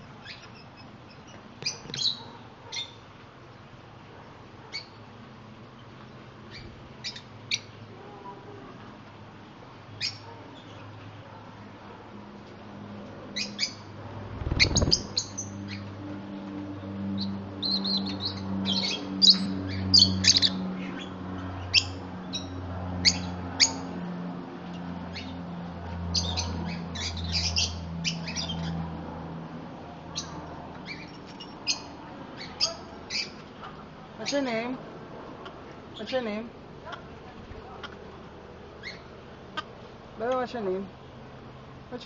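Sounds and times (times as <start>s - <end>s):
birds chirping and squawking: 0.0s - 3.1s, 5.8s - 7.8s, 10.0s - 11.2s, 13.3s - 16.0s, 16.8s - 24.0s, 24.6s - 29.0s, 30.1s - 34.7s, 38.8s - 39.9s.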